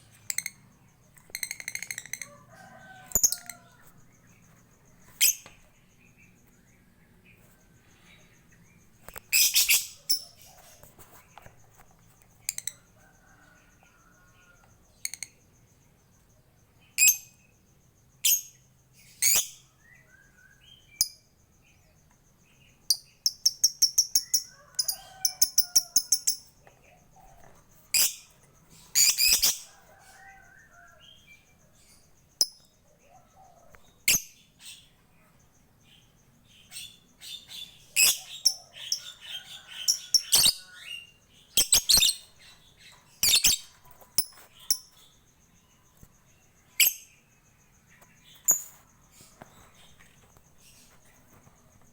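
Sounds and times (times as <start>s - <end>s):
lovebird shrill chirps: 9.3s - 10.4s, 28.9s - 29.7s, 36.7s - 42.3s, 43.2s - 45.0s.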